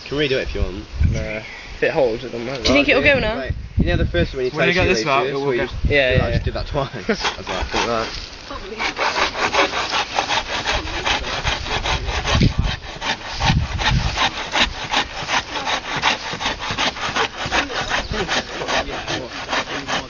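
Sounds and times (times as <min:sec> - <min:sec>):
hand saw cutting wood: 0:06.9 - 0:20.0.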